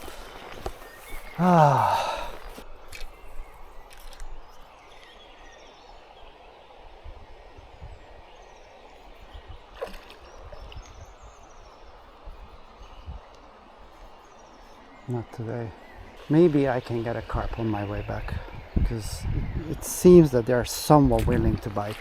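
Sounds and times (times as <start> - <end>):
faint bird calls: 0.0 - 6.8
creek flowing: 0.0 - 18.6.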